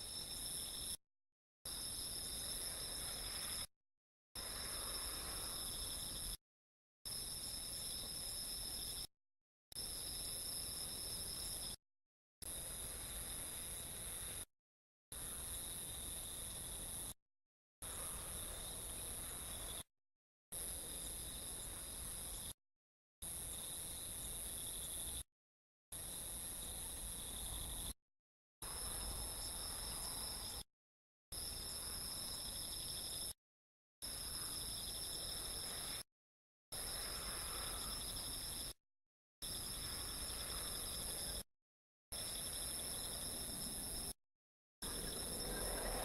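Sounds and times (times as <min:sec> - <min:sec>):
crickets and insects trilling: 0:36.8 - 0:38.7, 0:44.9 - 0:46.0.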